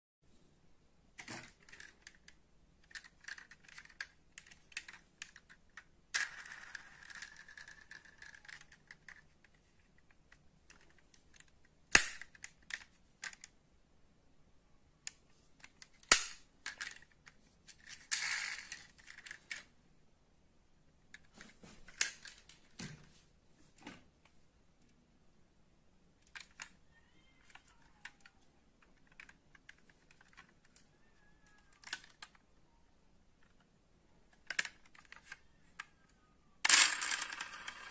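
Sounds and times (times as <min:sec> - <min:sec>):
metal model cars clicking: 0:01.2 - 0:13.5, 0:26.2 - 0:32.4, 0:34.3 - 0:37.9.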